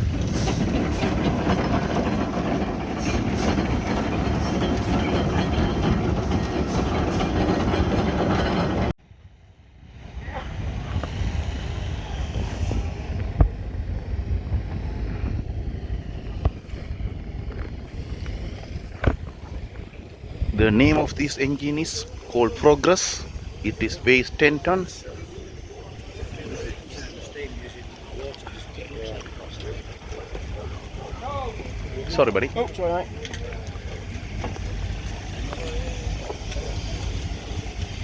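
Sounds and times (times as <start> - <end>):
low rumble: 0.0 - 22.3
steam engine clatter and rumble: 0.0 - 38.0.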